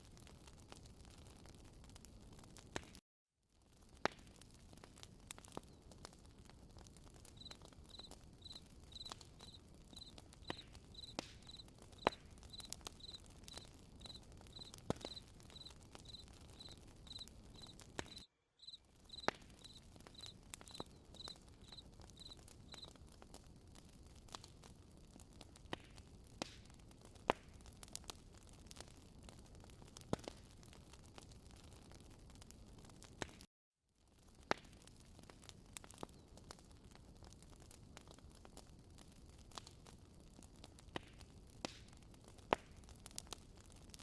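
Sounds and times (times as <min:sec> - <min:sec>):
campfire crackling and popping: 0:00.0 - 0:03.0, 0:03.6 - 0:33.5, 0:34.1 - 0:44.0
cricket chirping: 0:07.4 - 0:10.1, 0:10.9 - 0:11.6, 0:12.5 - 0:22.9.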